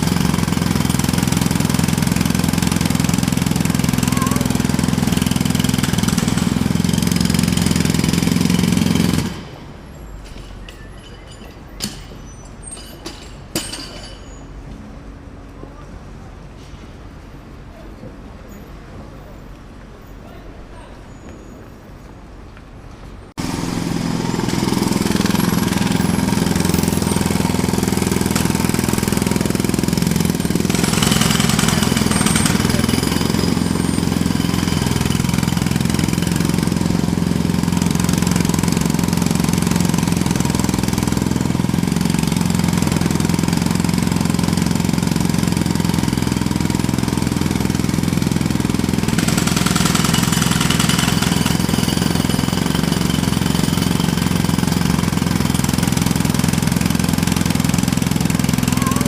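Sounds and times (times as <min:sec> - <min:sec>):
jackhammer hammering: 0:00.0 - 0:09.8, 0:12.8 - 0:14.3, 0:23.4 - 0:59.0.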